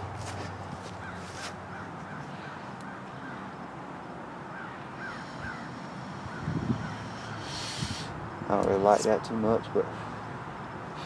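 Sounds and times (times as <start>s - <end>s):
bird calling: 4.5s - 8.2s.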